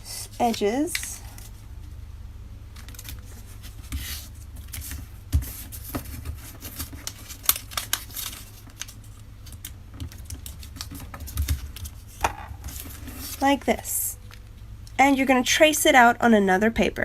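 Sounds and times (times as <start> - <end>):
paper being folded and creased: 0.2 - 1.6, 2.8 - 13.9.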